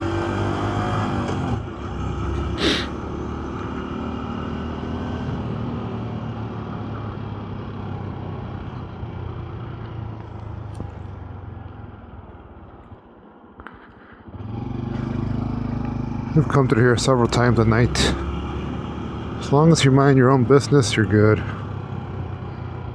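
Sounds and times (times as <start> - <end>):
road noise: 0.0 - 22.9
short sharp hiss: 2.6 - 3.0
motorcycle engine: 4.7 - 19.5.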